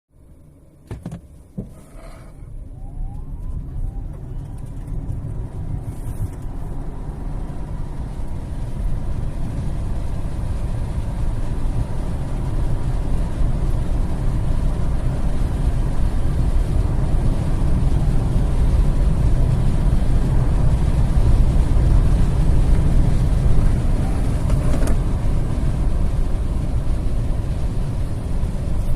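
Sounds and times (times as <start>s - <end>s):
road and wind noise: 0.1s - 28.9s
faint rising whine: 1.5s - 18.9s.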